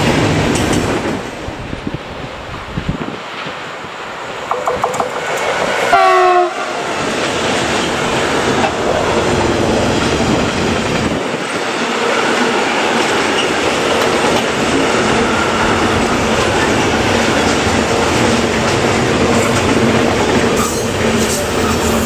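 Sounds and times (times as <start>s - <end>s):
freight train wagons rolling: 3.2s - 22.0s
locomotive horn blast: 5.9s - 6.8s.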